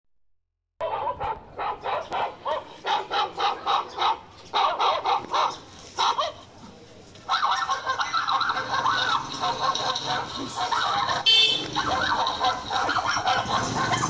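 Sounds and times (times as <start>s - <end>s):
puppy yelping: 7.3s - 14.0s.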